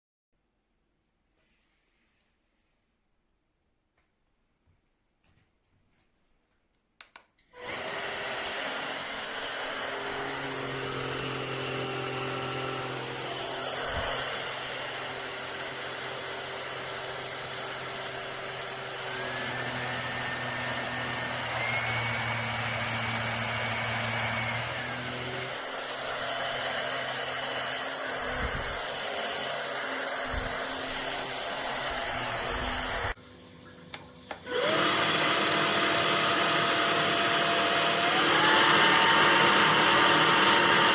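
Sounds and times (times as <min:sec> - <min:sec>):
stick vacuum cleaner running: 0:07.6 - 0:33.2, 0:33.9 - 0:40.9.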